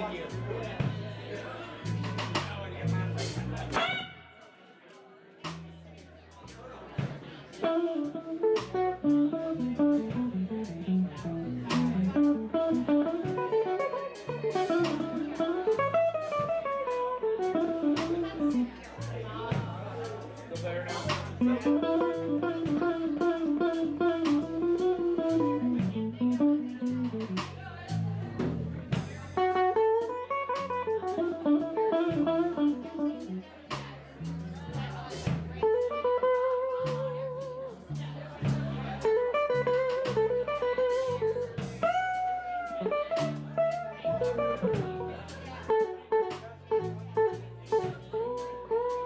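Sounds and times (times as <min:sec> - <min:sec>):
blues band playing live: 0:00.0 - 0:04.7, 0:05.4 - 0:49.0
electric guitar lead line: 0:03.0 - 0:04.6, 0:07.6 - 0:19.7, 0:21.4 - 0:27.4, 0:29.3 - 0:33.5, 0:35.6 - 0:37.7, 0:39.0 - 0:49.0.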